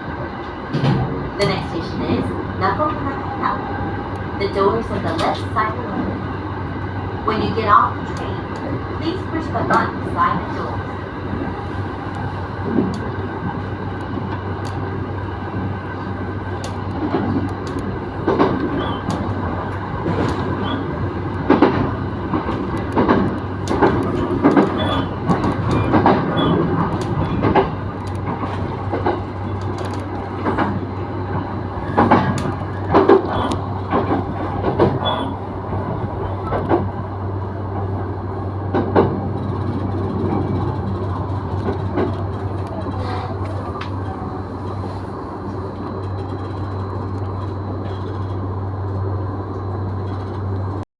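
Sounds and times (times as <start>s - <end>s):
train low hum: 0.0s - 50.9s
wheels clacking on track: 16.5s - 37.0s.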